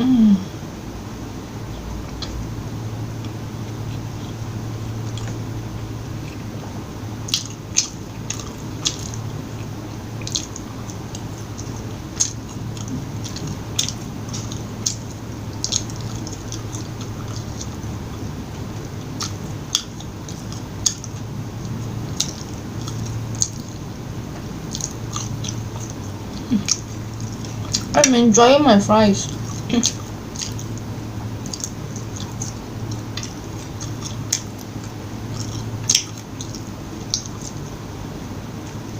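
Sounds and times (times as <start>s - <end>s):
low hum: 0.0s - 38.9s
chewing and biting food: 7.2s - 28.2s, 29.2s - 37.9s.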